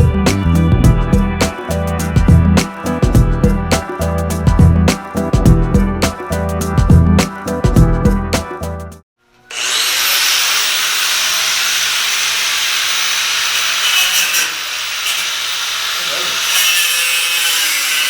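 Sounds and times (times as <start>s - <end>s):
background music: 0.0s - 9.0s
power tool cutting metal: 9.4s - 18.0s.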